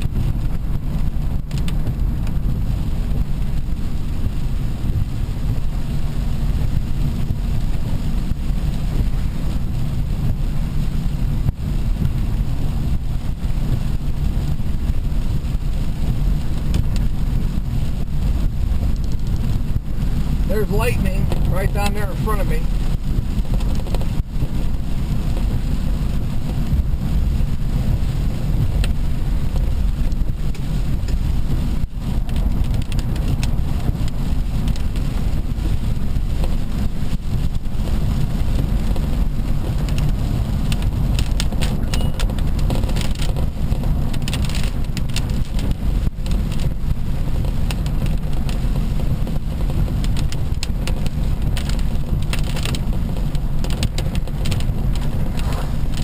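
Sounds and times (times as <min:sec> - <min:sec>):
vehicle road and wind rumble: 0:00.0 - 0:56.0
light ticks: 0:01.5 - 0:02.4, 0:39.7 - 0:46.7, 0:49.6 - 0:56.0.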